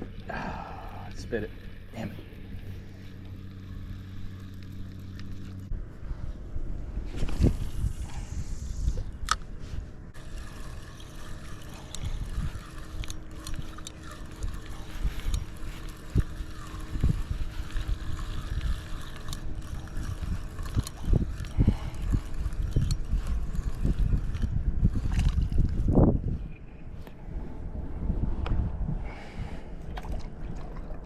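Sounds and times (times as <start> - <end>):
wind buffeting microphone: 0.0 - 31.0
water lapping against kayak hull: 29.4 - 31.0.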